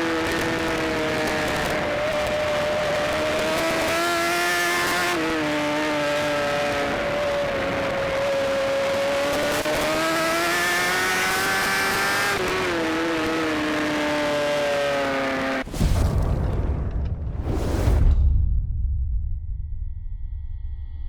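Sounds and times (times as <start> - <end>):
motorcycle engine revving high: 0.0 - 15.6.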